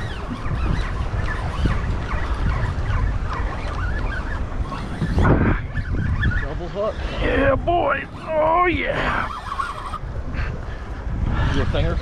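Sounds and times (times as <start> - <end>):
high squeaky chirps: 0.0 - 7.0, 7.8 - 10.0
boat rumble: 0.0 - 12.0
wind buffeting microphone: 0.0 - 12.0.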